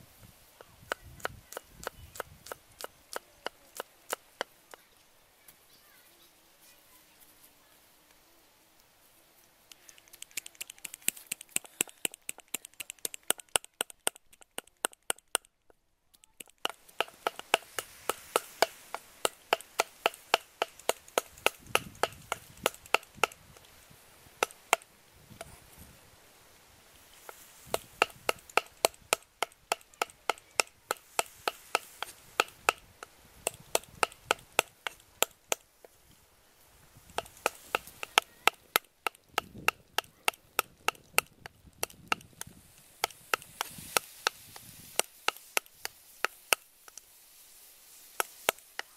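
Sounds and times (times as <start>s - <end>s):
cleaver chopping on wooden block: 0.6s - 4.8s, 10.4s - 15.5s, 16.4s - 23.7s, 27.3s - 36.0s, 37.1s - 47.0s, 48.2s - 48.9s.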